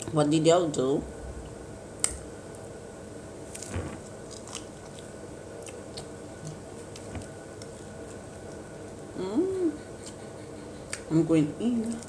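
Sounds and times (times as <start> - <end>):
faint steady hum: 0.0 - 12.0
chewing with wet smacks: 4.2 - 9.1.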